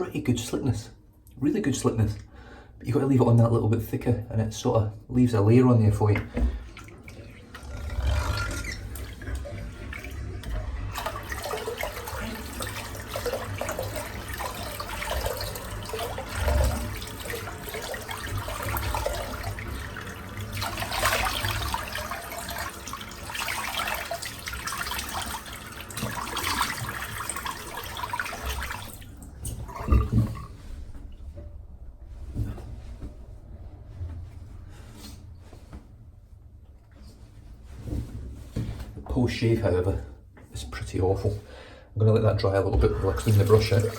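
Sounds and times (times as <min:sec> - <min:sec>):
tap water splashing into sink: 0:06.0 - 0:30.6, 0:42.6 - 0:43.9.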